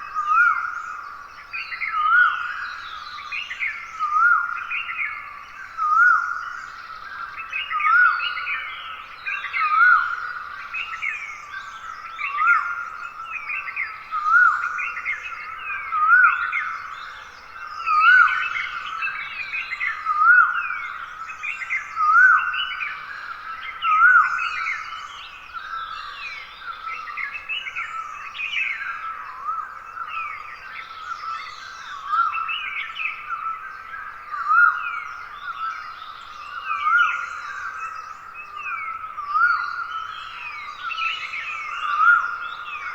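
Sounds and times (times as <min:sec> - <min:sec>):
birds chirping and calling: 0:31.0 - 0:42.9.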